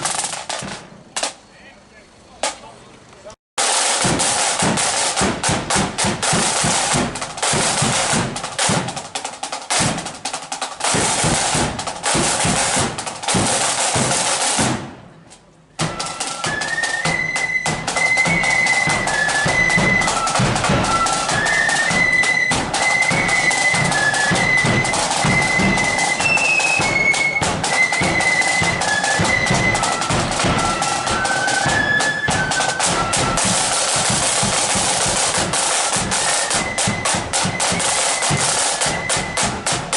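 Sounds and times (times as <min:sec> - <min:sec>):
snare and bass drums beating: 0:00.0 - 0:01.4, 0:03.6 - 0:15.1, 0:15.8 - 0:39.9
flutes playing high tune: 0:15.8 - 0:39.9.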